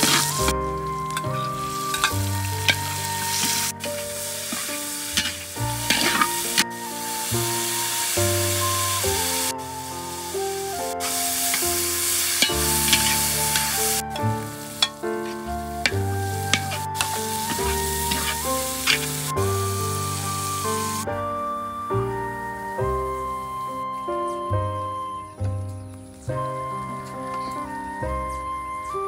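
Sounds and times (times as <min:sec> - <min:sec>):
food sizzling in hot oil: 0:00.0 - 0:00.5, 0:01.1 - 0:21.1
melodic background music: 0:00.0 - 0:29.0.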